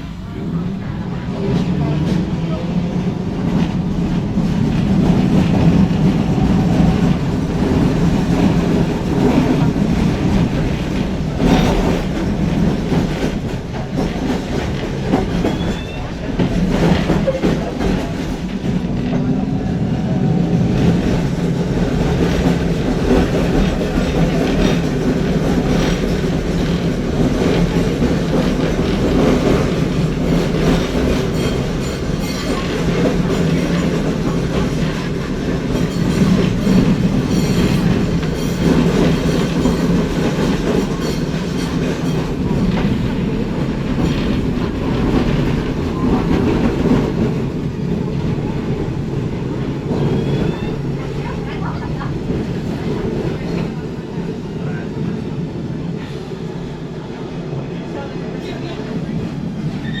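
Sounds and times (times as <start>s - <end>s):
tram wheels rumbling: 0.0s - 60.0s
wheels clacking over rail joints: 20.5s - 54.2s.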